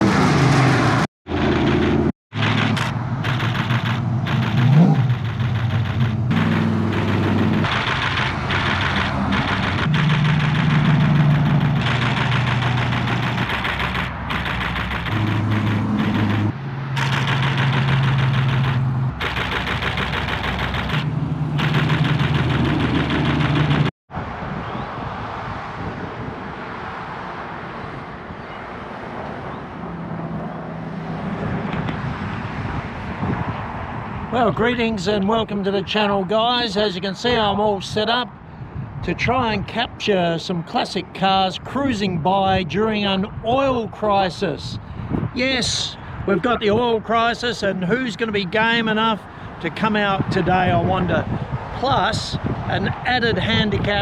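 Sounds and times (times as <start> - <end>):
engine revving: 0.0 - 23.9
road traffic noise: 0.0 - 54.0
car engines idling: 1.4 - 23.9.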